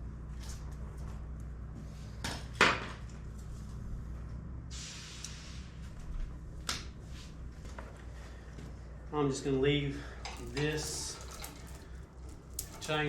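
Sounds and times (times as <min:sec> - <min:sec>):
low hum: 0:00.0 - 0:13.0
metal knocks and clanks: 0:10.2 - 0:13.0.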